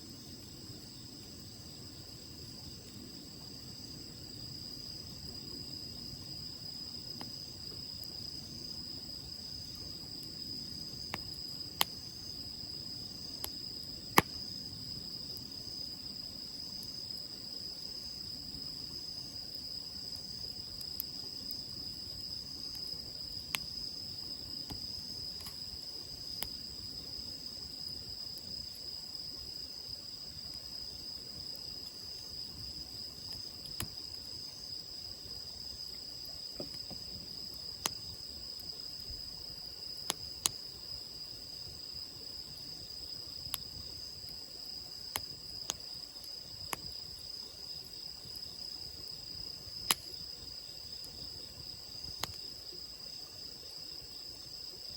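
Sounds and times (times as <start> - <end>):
crickets chirring: 0.0 - 54.9
campfire crackling and popping: 5.9 - 29.5, 31.6 - 34.5, 35.3 - 39.0, 40.0 - 40.7, 43.4 - 47.2, 49.6 - 50.2, 52.1 - 52.4.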